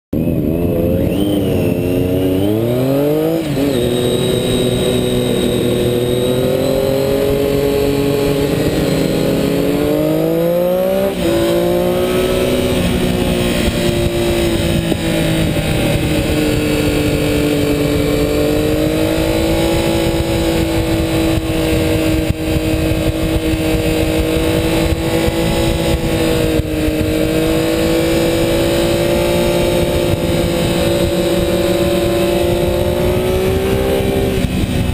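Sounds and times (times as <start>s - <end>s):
motorcycle engine at high revs: 0.2s - 34.9s.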